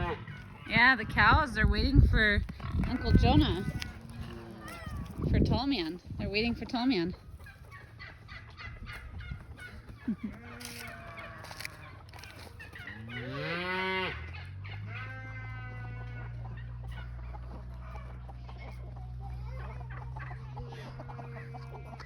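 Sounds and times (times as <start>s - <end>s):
cow mooing: 0.0s - 1.1s, 2.6s - 5.2s, 10.5s - 11.7s, 13.0s - 16.4s
chickens clucking: 0.0s - 1.6s, 2.4s - 22.0s.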